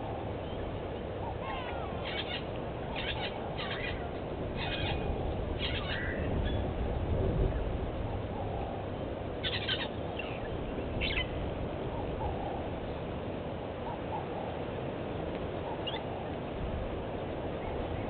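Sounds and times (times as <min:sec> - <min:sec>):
low background rumble: 0:00.0 - 0:14.5.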